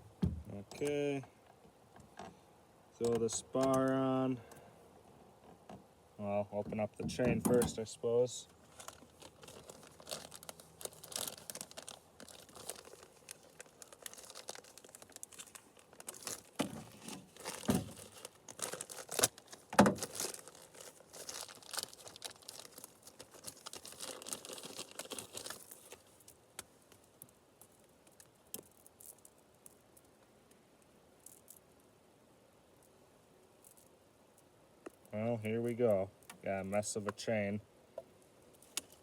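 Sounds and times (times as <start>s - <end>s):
packaging crinkling and tearing: 8.5s - 29.8s, 38.6s - 39.0s.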